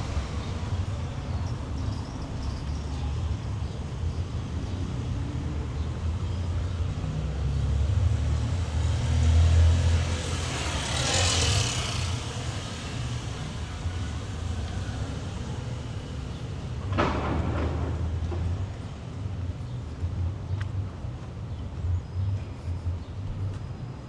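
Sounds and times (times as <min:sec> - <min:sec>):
vehicle engine rumble: 0:00.0 - 0:24.0.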